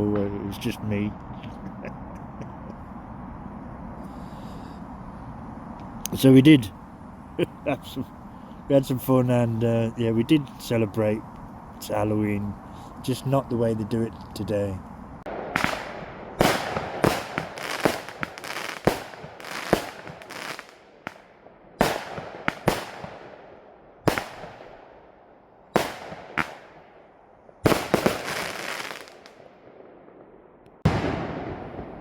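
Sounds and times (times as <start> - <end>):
fireworks bangs with echo: 15.3 - 25.0, 25.7 - 27.0, 27.6 - 32.0.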